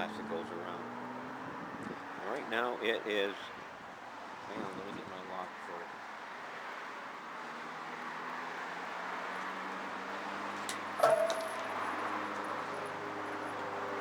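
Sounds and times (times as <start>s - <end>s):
background noise: 0.0s - 14.0s
metal clank with ring: 11.0s - 12.8s.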